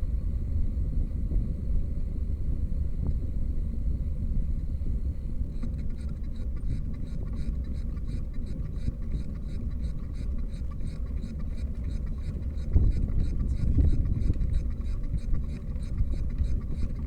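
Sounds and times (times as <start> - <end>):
light regular ticking: 7.9 - 17.0
wind rumbling on microphone: 12.4 - 17.0.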